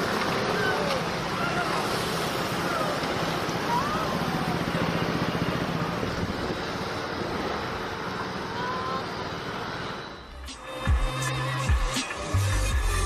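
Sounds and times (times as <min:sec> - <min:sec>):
faint high whistling glides: 0:00.0 - 0:13.0.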